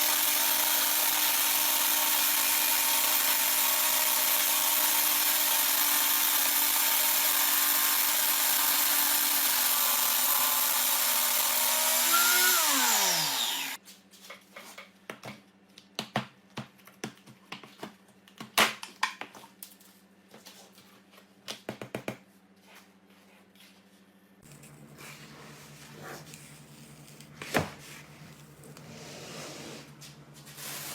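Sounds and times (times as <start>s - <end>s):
grinder motor running and spinning down: 0.1s - 13.8s.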